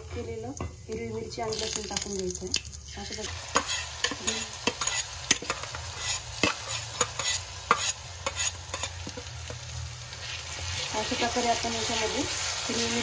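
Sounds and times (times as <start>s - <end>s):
spices sizzling and popping in oil: 0.0s - 13.0s
stirring in pan: 3.2s - 13.0s.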